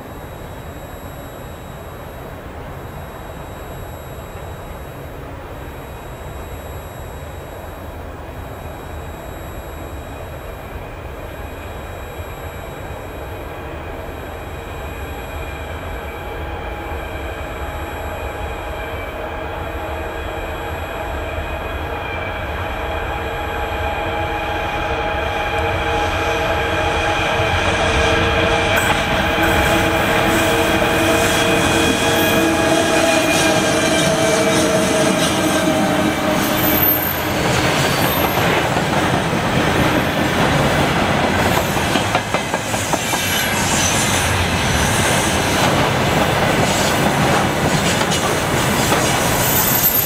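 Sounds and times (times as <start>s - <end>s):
locomotive whining tones: 0.0s - 50.0s
freight train rumble: 10.2s - 50.0s.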